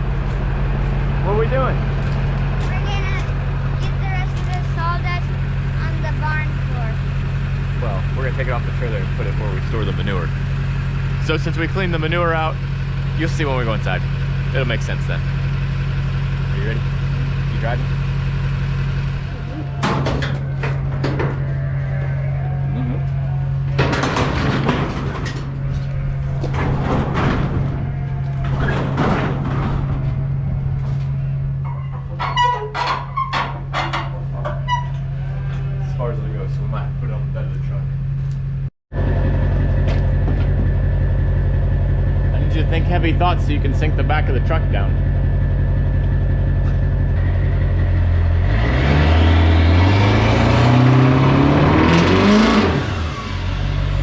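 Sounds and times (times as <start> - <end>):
tires spinning in dirt: 0.0 - 32.2, 39.0 - 54.0
engine idling: 0.0 - 49.4.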